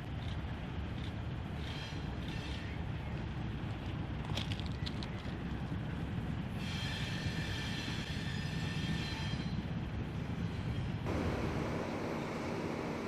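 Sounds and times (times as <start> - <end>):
rail cars rumbling: 0.0 - 13.0
wheels squealing on rails: 1.5 - 3.2, 6.5 - 11.4
locomotive engine drone: 9.8 - 13.0.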